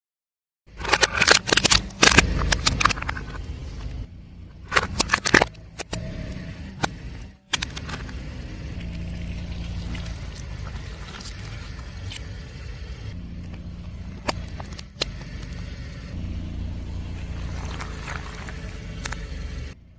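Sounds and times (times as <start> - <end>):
objects cracking under a tyre: 0.7 - 6.1, 7.5 - 12.4, 13.4 - 15.7, 17.2 - 19.8
car rolling rumble: 0.7 - 19.9.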